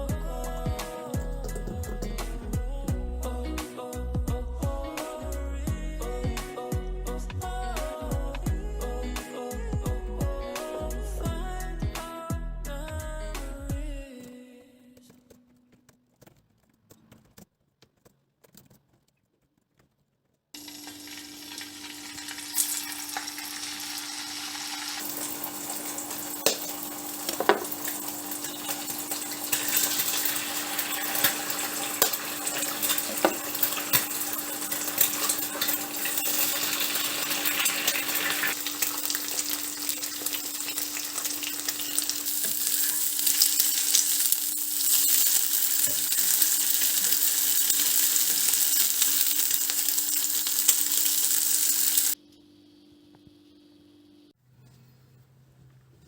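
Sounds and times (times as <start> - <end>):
food sizzling in a pan: 20.6 - 52.2.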